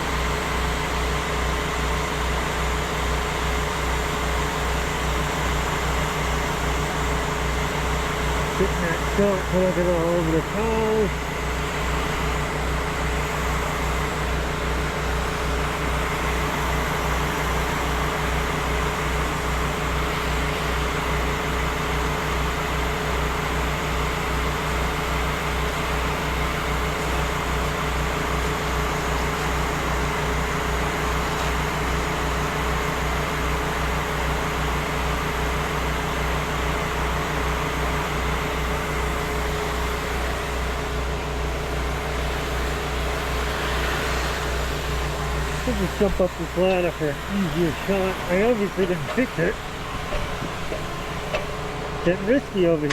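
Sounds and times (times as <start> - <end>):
small petrol engine running: 0.0 - 25.4, 36.9 - 52.9.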